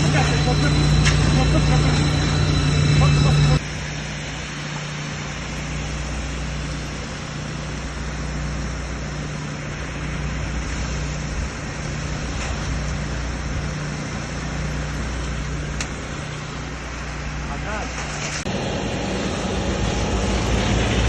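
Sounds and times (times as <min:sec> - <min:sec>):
engine humming: 0:00.0 - 0:21.0
constant hiss: 0:03.5 - 0:18.5.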